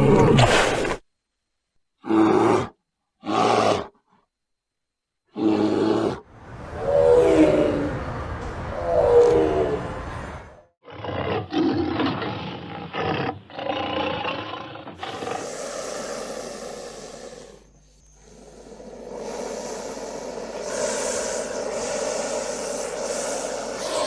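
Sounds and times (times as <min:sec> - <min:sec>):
animal roaring: 0:05.3 - 0:10.0, 0:10.8 - 0:24.0
noisy steady nature sound: 0:11.8 - 0:24.0.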